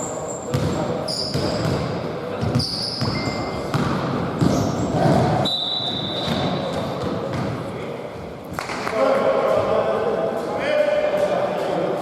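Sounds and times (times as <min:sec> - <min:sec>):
players' voices: 0:00.0 - 0:12.0
basketball bouncing on court: 0:00.5 - 0:05.5, 0:06.2 - 0:07.6.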